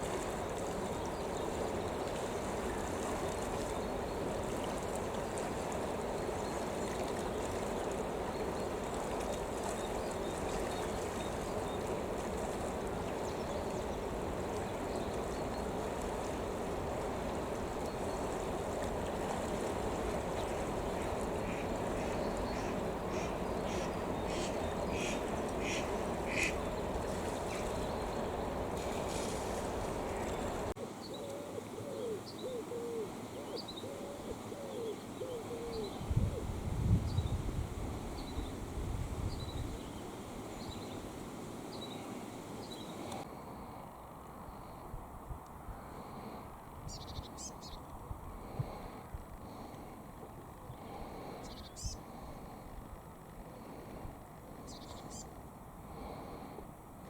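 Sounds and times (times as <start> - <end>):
rushing water: 0.0 - 31.0
pigeon cooing: 31.2 - 36.0.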